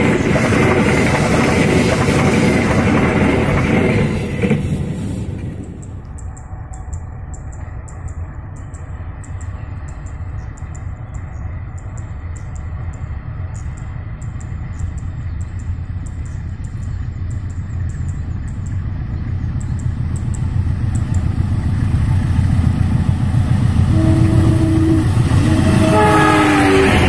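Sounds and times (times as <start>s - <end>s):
locomotive engine and rail rumble: 0.0s - 27.0s
train horn blasts: 23.8s - 27.0s.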